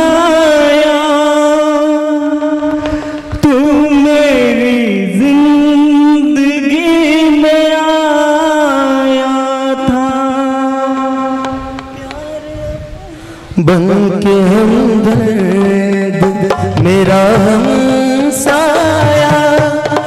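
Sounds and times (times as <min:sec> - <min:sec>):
person singing long notes: 0:00.0 - 0:20.0
music: 0:13.7 - 0:20.0.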